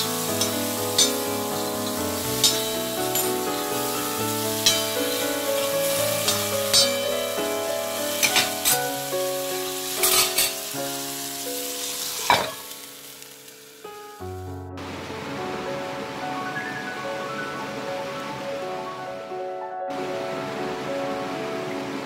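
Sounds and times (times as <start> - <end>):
vegetables sizzling on a griddle: 0.0 - 14.2
background music: 0.0 - 22.0
glass lid clinking: 12.2 - 12.6.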